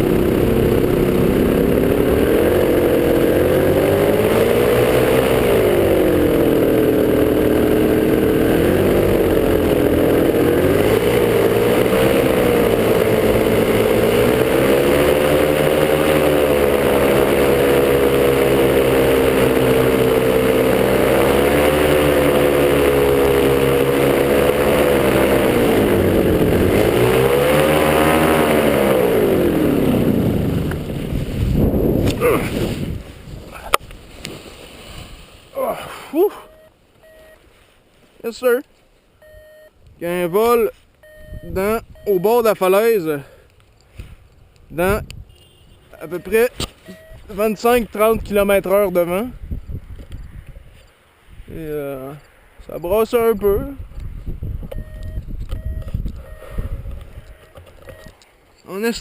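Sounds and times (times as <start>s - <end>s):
paramotor engine revving: 0.0s - 36.7s, 46.0s - 49.4s.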